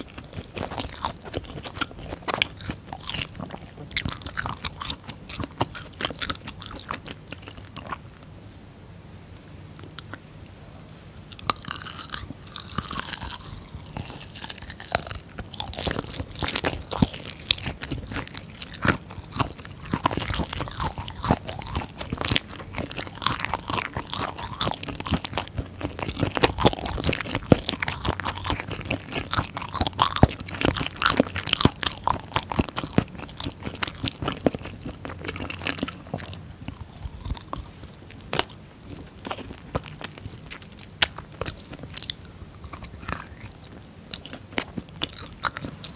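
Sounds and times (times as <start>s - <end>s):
crunchy chewing and biting: 0.0s - 8.6s, 9.8s - 45.9s.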